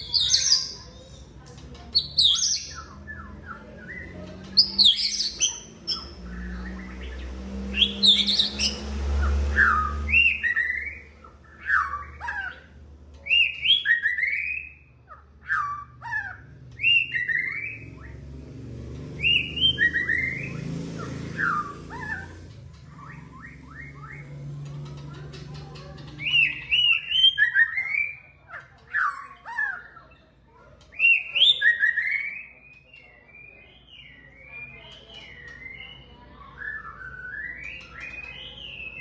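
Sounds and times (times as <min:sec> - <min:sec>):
bird singing whistled phrases: 0:00.0 - 0:01.0, 0:01.9 - 0:12.6, 0:13.3 - 0:14.9, 0:15.5 - 0:18.1, 0:19.2 - 0:20.6, 0:26.2 - 0:28.2, 0:31.0 - 0:39.0.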